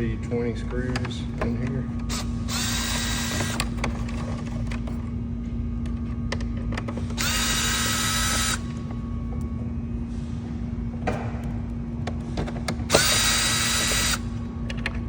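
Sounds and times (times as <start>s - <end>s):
steady low hum: 0.0s - 15.0s
cordless drill spinning: 1.5s - 5.0s, 7.1s - 9.0s, 12.8s - 14.3s.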